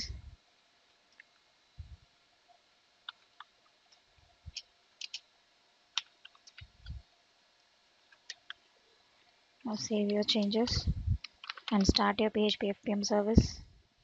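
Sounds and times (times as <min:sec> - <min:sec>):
keyboard and mouse clicking: 0:03.0 - 0:05.2, 0:06.0 - 0:07.0, 0:08.1 - 0:08.6, 0:09.9 - 0:10.6, 0:11.2 - 0:12.7
soft low thumps: 0:09.8 - 0:12.0.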